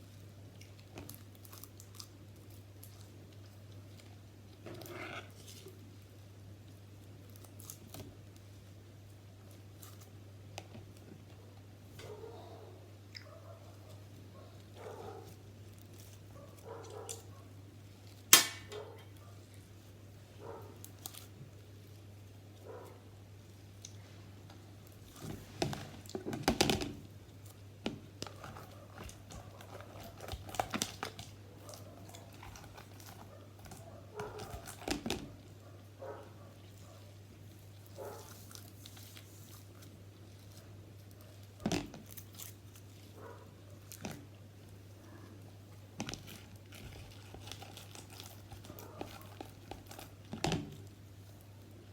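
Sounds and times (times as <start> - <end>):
crinkling and tearing: 0.1 - 8.6, 9.3 - 11.2, 23.8 - 35.5, 36.6 - 51.9.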